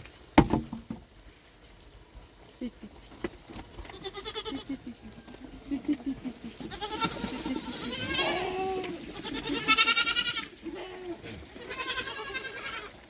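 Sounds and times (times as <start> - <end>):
goats bleating: 3.9 - 5.0, 6.5 - 13.0.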